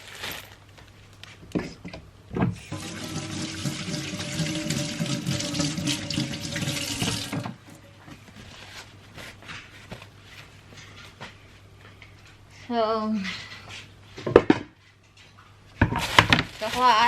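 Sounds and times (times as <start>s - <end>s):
tap water running into sink: 2.6s - 7.8s
hands washing under water: 2.7s - 7.8s.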